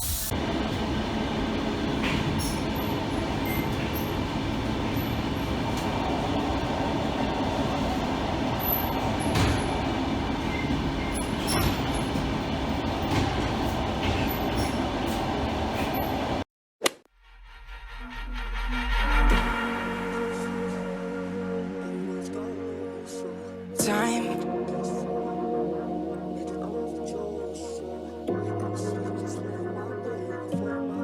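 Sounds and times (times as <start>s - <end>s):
moving vehicle rumble: 0.3s - 16.4s
knocks: 7.2s - 16.1s.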